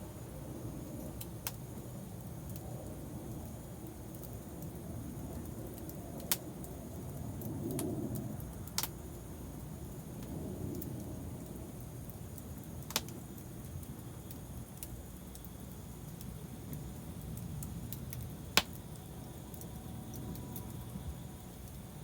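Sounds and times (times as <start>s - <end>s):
wood fire crackling: 0.0s - 22.0s
sharp fire pops: 1.0s - 1.8s, 5.4s - 6.8s, 7.4s - 9.0s, 10.2s - 20.8s.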